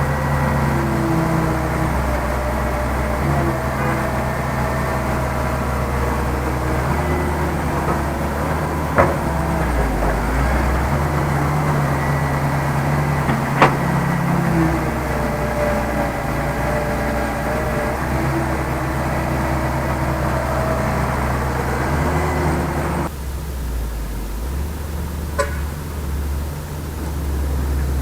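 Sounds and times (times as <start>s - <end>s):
heavy diesel engine running: 0.0s - 28.0s
sharp knocks: 7.7s - 12.2s, 13.0s - 14.3s.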